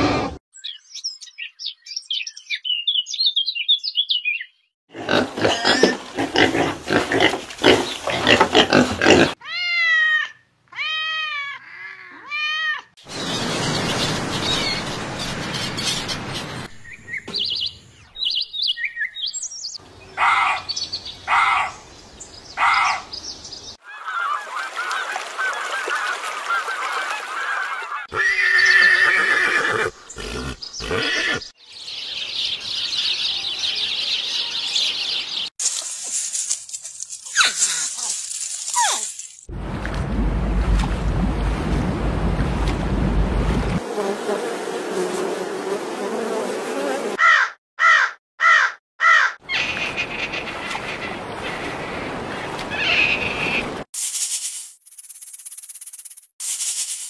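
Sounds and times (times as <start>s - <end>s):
birds chirping: 13.0s - 35.6s, 47.2s - 53.9s
birds squawking: 23.8s - 31.5s, 47.2s - 51.8s, 52.7s - 53.8s.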